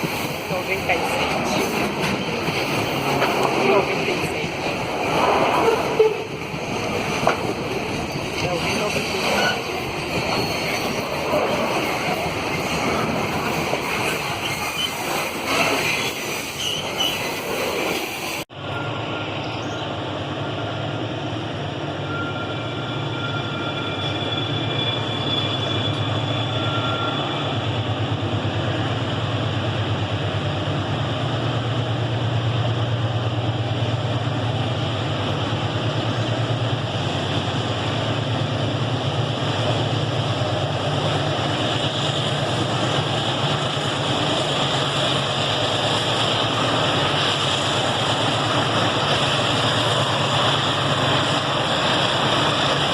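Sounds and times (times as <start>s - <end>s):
train wheels rumbling on rails: 0.0s - 52.9s
high wheel squeal: 8.8s - 12.8s, 14.0s - 19.9s, 22.0s - 27.6s.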